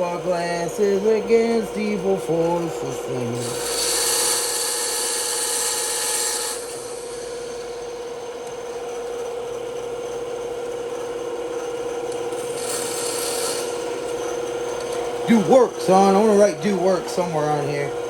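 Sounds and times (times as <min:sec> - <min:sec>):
blade cutting wood: 0:00.0 - 0:08.6, 0:12.1 - 0:18.0
bandsaw humming: 0:00.0 - 0:18.0.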